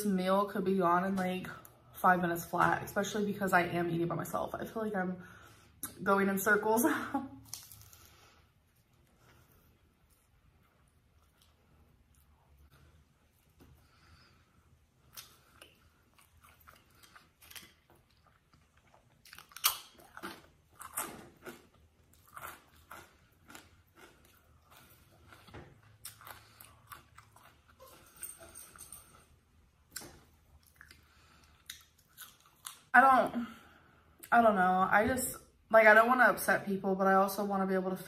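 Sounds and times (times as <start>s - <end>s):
person chewing food: 7.5s - 32.9s
food crunching: 15.0s - 28.5s, 29.1s - 32.9s.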